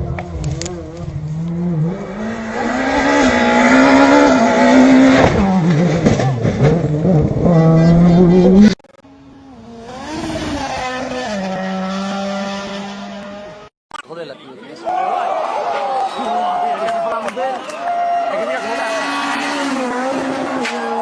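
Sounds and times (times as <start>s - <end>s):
rally car engine at full throttle: 0.0s - 13.7s, 18.1s - 21.0s
second rally car engine: 0.0s - 13.7s, 18.4s - 21.0s.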